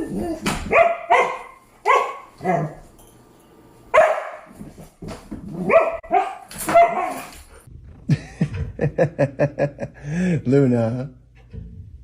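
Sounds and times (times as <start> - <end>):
dog barking: 0.3 - 2.8, 3.9 - 4.5, 5.6 - 7.3.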